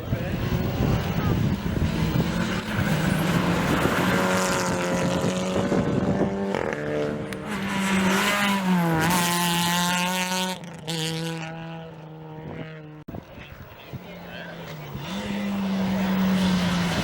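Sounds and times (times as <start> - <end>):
rally car engine at high revs: 0.0 - 13.1, 13.8 - 17.0.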